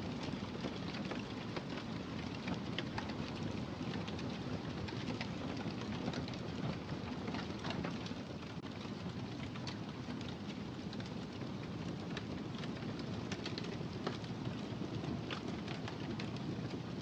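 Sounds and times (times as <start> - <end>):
low rumble of flames: 0.0 - 17.0
fire popping and snapping: 0.1 - 17.0.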